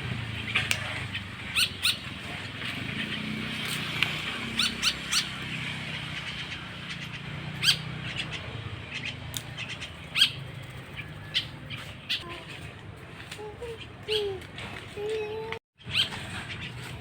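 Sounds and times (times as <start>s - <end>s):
bird chick chirping: 0.5s - 5.3s, 6.0s - 12.3s.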